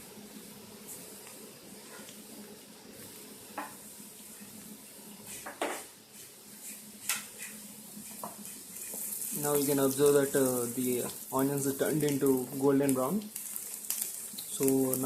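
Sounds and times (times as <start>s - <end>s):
onions sizzling in a pan: 0.0s - 15.0s
spatula scraping a pan: 5.2s - 10.0s.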